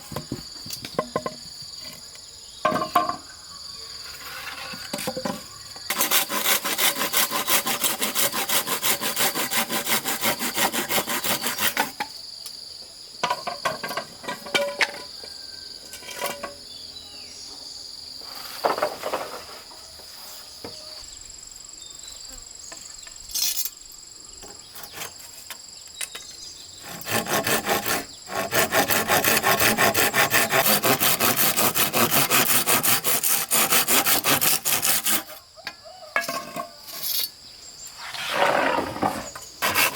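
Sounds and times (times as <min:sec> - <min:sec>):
sawing wood: 0:05.9 - 0:12.0, 0:24.7 - 0:25.2, 0:26.8 - 0:35.4, 0:38.0 - 0:39.9.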